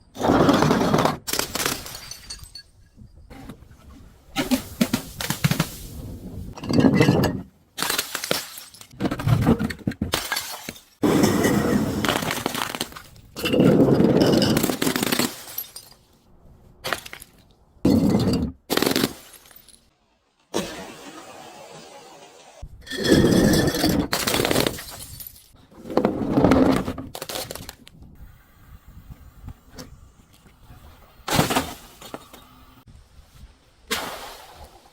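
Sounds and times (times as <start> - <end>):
glass bottles shattering: 1.3 - 3.0, 6.6 - 9.0, 10.1 - 12.8, 13.4 - 16.1, 16.9 - 19.9, 22.9 - 25.6.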